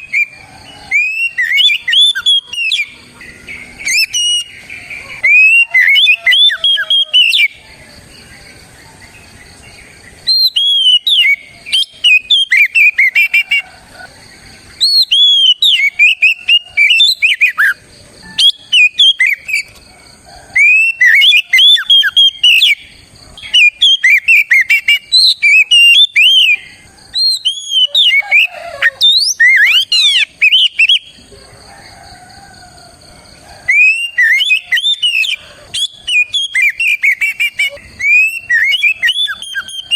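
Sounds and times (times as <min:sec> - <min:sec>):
bird singing varied whistles: 0:00.0 - 0:03.0, 0:03.8 - 0:04.5, 0:10.2 - 0:13.6, 0:14.8 - 0:19.8, 0:20.6 - 0:22.8, 0:23.4 - 0:31.1, 0:33.7 - 0:39.9.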